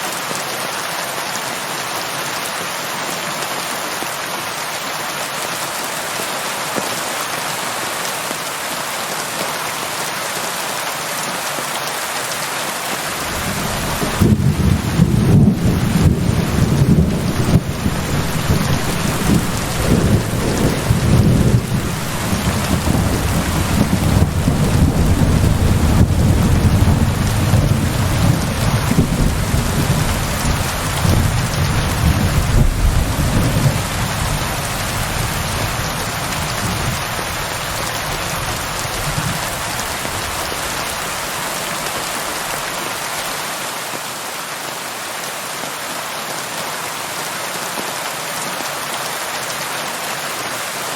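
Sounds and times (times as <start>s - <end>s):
heavy rain: 0.0s - 50.9s
rolling thunder: 13.2s - 37.1s.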